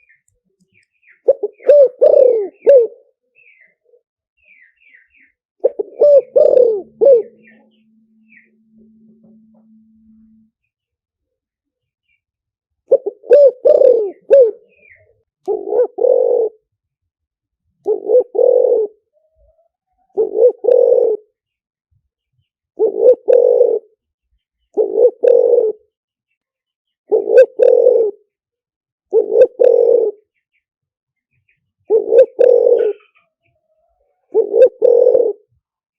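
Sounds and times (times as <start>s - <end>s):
dove cooing: 1.2s - 3.2s, 5.6s - 9.6s, 12.9s - 16.7s, 17.8s - 21.4s, 22.8s - 24.0s, 24.8s - 25.9s, 27.1s - 28.3s, 29.1s - 30.3s, 31.9s - 35.6s.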